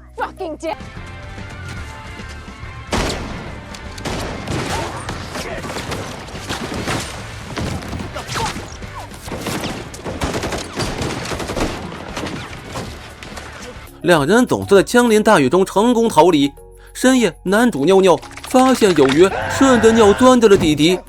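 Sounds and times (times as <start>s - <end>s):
background music: 0.0s - 21.0s
rapid gunfire: 2.9s - 13.9s.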